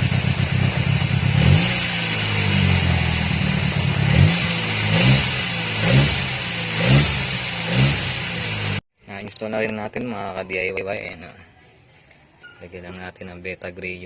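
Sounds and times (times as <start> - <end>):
car engine idling and revving: 0.0 - 8.8.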